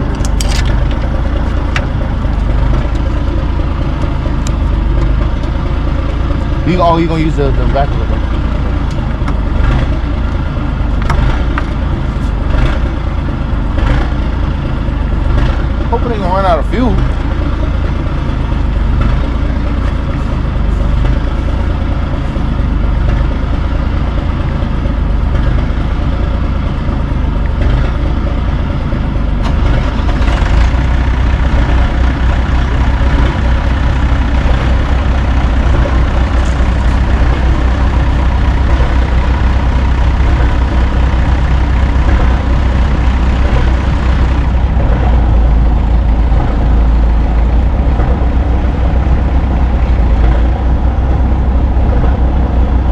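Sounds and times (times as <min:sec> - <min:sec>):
heavy truck engine running: 0:00.0 - 0:52.9.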